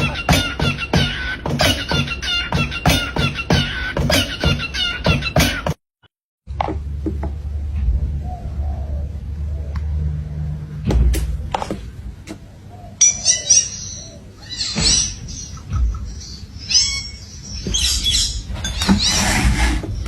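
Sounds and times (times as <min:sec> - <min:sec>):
parrot chirping: 0:00.0 - 0:05.6, 0:12.6 - 0:19.6.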